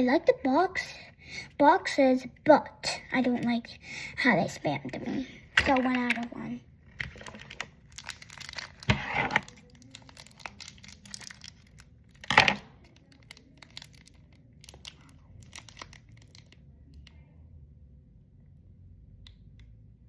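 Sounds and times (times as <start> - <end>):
packaging crinkling: 6.9 - 16.6
packaging ripping: 7.0 - 16.5.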